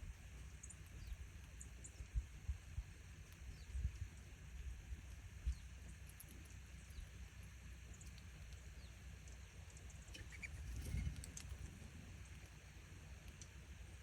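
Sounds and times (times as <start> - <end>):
low steady rumble: 0.0 - 14.0
squirrel clicking: 5.0 - 10.0, 12.2 - 13.6.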